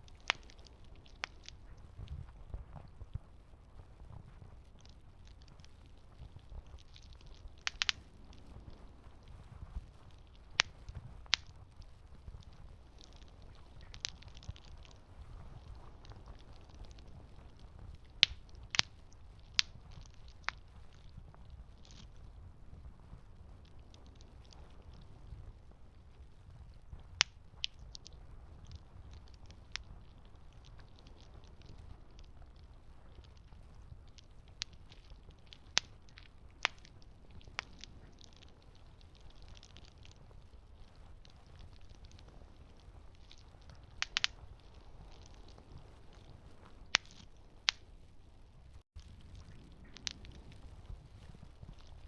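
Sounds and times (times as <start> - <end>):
sharp wood snaps: 0.0 - 1.8, 4.6 - 9.3, 9.9 - 22.2, 27.0 - 47.9, 49.4 - 50.7
campfire crackling: 0.0 - 52.0
faint low rumble: 0.0 - 52.0.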